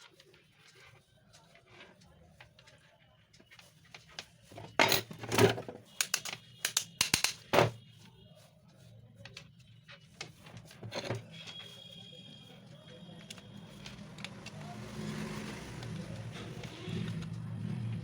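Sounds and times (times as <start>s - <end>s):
sharp clicks of small hard parts: 6.0s - 7.5s.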